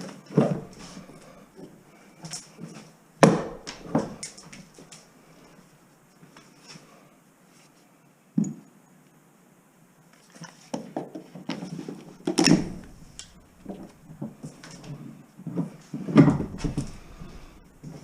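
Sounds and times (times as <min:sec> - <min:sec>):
debris clattering and banging: 0:12.1 - 0:15.0, 0:16.1 - 0:18.0.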